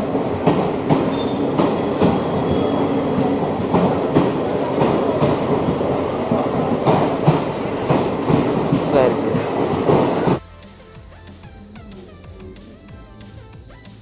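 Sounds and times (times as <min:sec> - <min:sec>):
train rumbling on rails: 0:00.0 - 0:10.4
wheels clacking over rail joints: 0:00.0 - 0:10.4
faint wheel squeal: 0:01.1 - 0:03.1.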